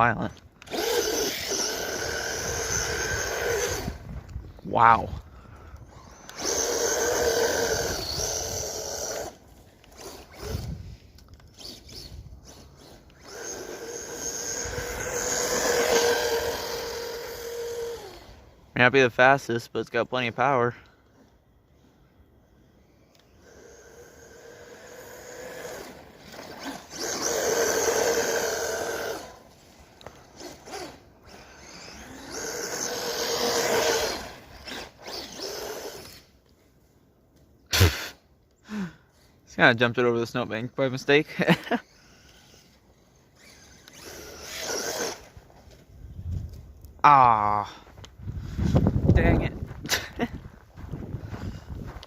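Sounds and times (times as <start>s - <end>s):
electric motor whining: 0.6s - 4.6s, 5.7s - 18.6s, 22.8s - 36.4s, 41.8s - 45.7s.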